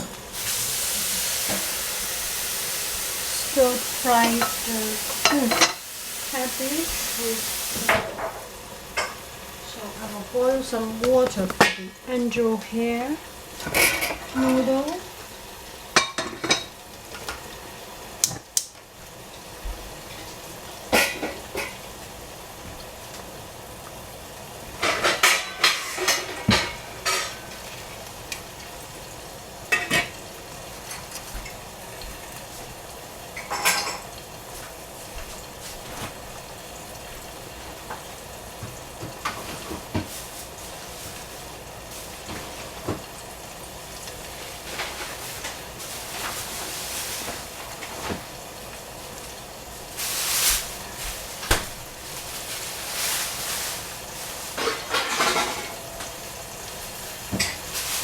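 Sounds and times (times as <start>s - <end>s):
food sizzling in a pan: 0.0s - 58.0s
cookware and utensils clattering: 3.2s - 12.4s, 13.6s - 15.1s, 15.9s - 17.5s, 20.0s - 22.0s, 24.7s - 28.7s, 29.7s - 31.6s, 33.3s - 36.4s, 37.8s - 41.4s, 44.2s - 48.3s, 50.0s - 56.4s, 57.2s - 58.0s.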